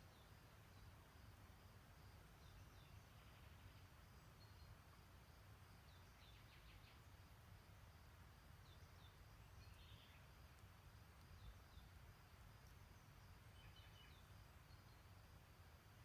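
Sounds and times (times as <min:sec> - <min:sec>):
distant songbirds calling: 0:00.0 - 0:01.1, 0:02.3 - 0:05.0, 0:05.7 - 0:07.2, 0:08.5 - 0:15.3.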